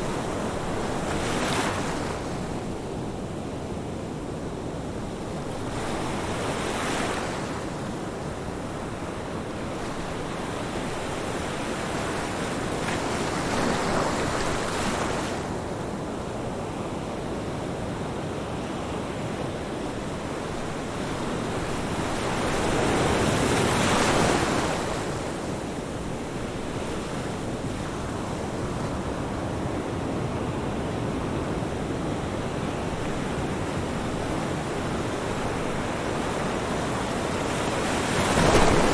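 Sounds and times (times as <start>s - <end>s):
waves breaking and rushing in: 31.7s - 38.9s
waves washing: 32.7s - 38.9s.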